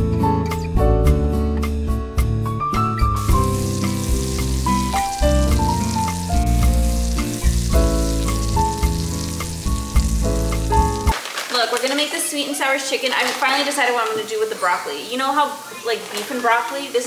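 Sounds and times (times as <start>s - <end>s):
background music melody: 0.0s - 11.2s
vegetables sizzling in hot oil: 3.2s - 11.5s.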